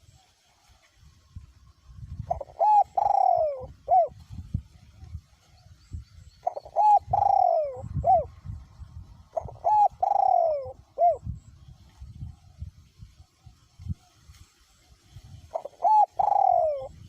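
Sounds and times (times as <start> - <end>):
low wind rumble on microphone: 0.9 - 17.0
dove cooing: 2.2 - 4.2, 6.4 - 8.6, 9.2 - 11.4, 15.5 - 17.0.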